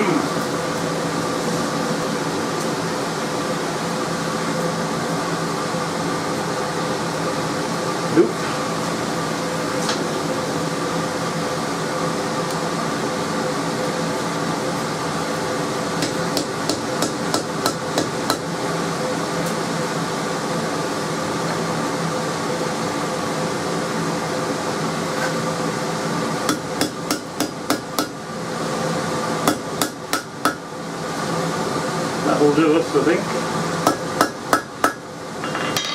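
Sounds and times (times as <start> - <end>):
steady mechanical hum: 0.0 - 35.9
hammer striking steel on anvil: 33.9 - 35.9.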